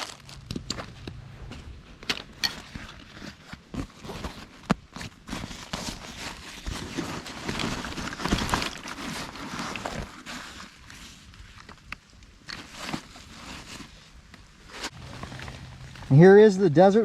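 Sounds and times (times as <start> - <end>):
clicks and knocks of gear: 0.0 - 13.1
gear rustling: 0.0 - 16.7.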